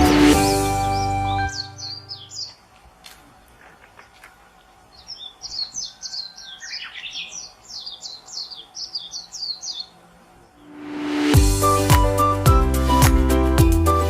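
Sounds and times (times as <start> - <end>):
music beat: 0.0 - 1.5, 10.8 - 14.0
music: 0.0 - 2.1, 10.8 - 14.0
songbird chirping: 0.0 - 13.0.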